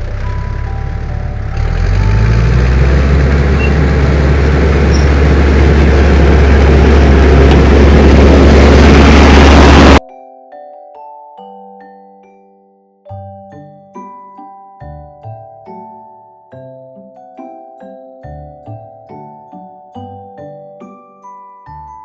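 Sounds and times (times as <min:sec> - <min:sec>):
heavy vehicle engine rumbling: 0:00.0 - 0:10.0.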